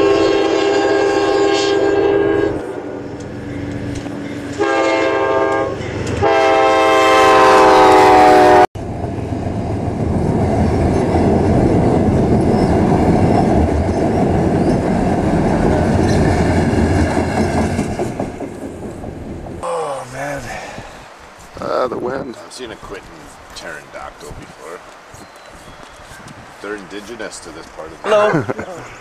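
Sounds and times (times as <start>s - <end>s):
train horn blasts: 0.0s - 2.9s, 4.6s - 8.7s
train wheels on rails: 2.6s - 6.8s, 8.8s - 19.6s, 22.5s - 28.0s.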